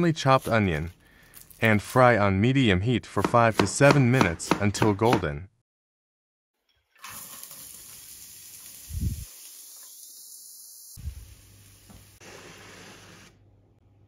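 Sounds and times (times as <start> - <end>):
onion sizzling in a frying pan: 7.0 - 13.2.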